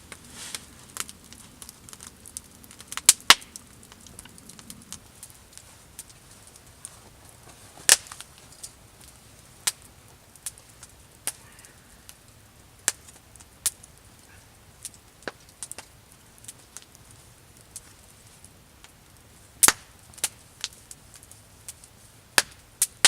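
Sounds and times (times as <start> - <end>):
faint hiss: 0.0 - 23.0
wood campfire crackling: 0.0 - 23.0.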